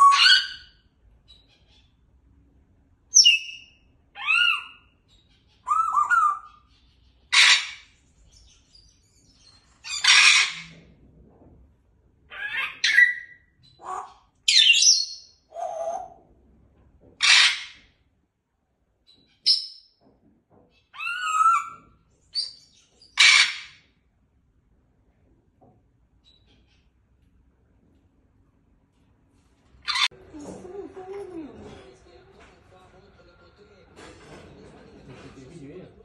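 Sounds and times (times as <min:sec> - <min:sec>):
parrot chirps and whistles: 0:00.0 - 0:00.8, 0:03.2 - 0:04.9, 0:05.6 - 0:06.7, 0:12.4 - 0:16.1
parrot squawking: 0:00.0 - 0:02.0, 0:03.1 - 0:08.0, 0:09.8 - 0:10.8, 0:12.3 - 0:16.2, 0:17.2 - 0:17.9, 0:20.9 - 0:23.9, 0:29.8 - 0:30.3.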